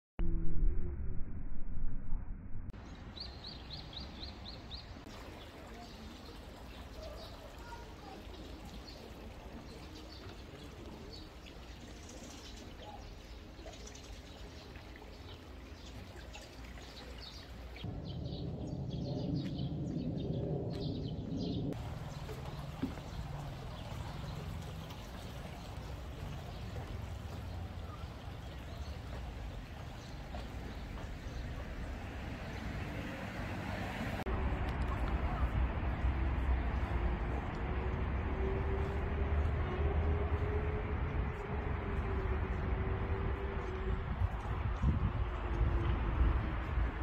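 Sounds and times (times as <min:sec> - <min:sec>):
small birds chirping: 0:02.8 - 0:32.9.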